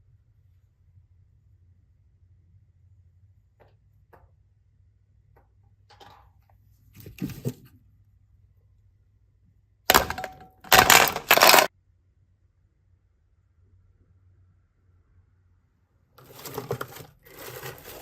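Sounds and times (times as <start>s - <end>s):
crackling handling sounds: 9.9s - 11.7s, 16.2s - 18.0s.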